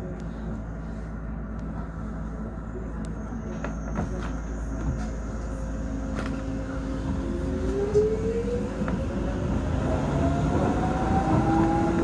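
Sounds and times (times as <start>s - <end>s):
wheels rumbling on rails: 0.0s - 12.0s.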